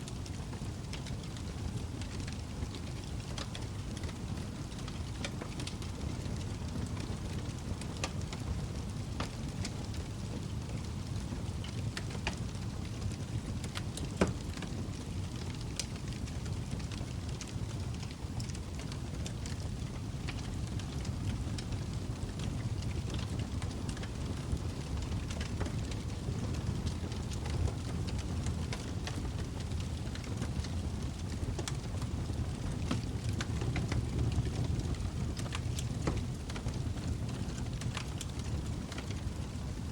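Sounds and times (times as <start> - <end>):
burning wood crackling and popping: 0.0 - 39.9
low rumble of flames: 0.0 - 39.9.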